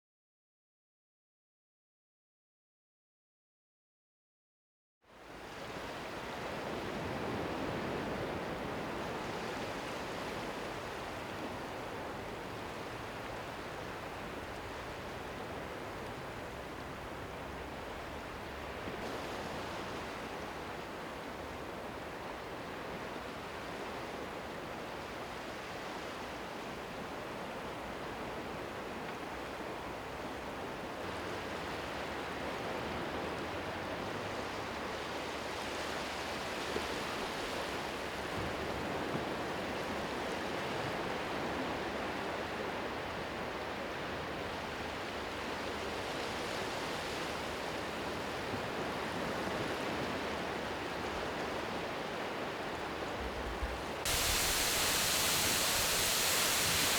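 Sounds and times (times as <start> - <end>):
sea surf rushing: 53.7 - 56.9.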